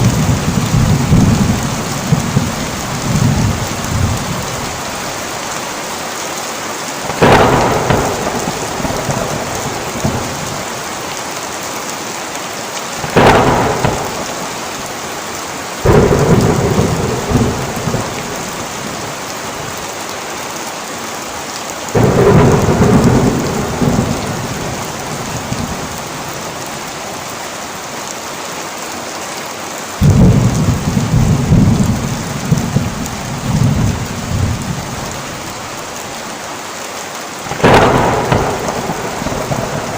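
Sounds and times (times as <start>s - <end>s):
thunder peals rumbling: 0.0s - 4.8s, 7.1s - 11.1s, 13.0s - 15.0s, 15.8s - 19.8s, 22.0s - 26.4s, 30.0s - 35.6s, 37.4s - 39.9s
heavy rain: 0.0s - 39.9s.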